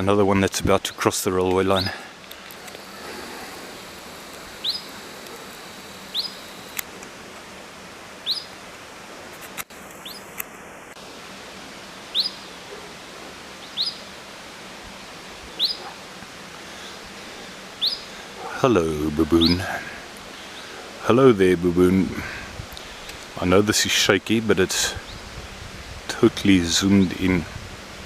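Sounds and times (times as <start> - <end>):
background hiss: 0.0 - 28.0
bird chirping: 2.6 - 6.8, 8.2 - 8.6, 10.0 - 10.3, 12.1 - 12.6, 13.6 - 14.0, 15.6 - 16.0, 17.8 - 18.1.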